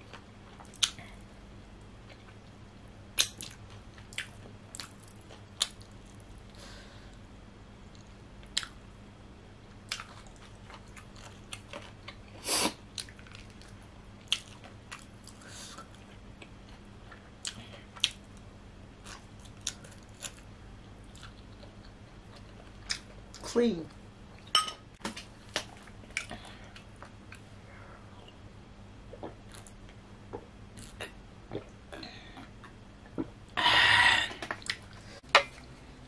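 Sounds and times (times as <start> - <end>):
chewing and crunching: 3.2 - 6.3, 9.9 - 18.4, 19.0 - 23.4.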